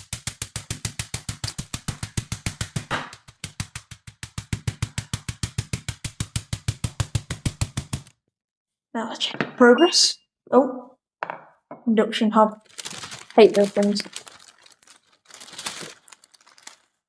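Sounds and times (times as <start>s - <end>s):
meat being pounded thuds: 0.0s - 8.1s.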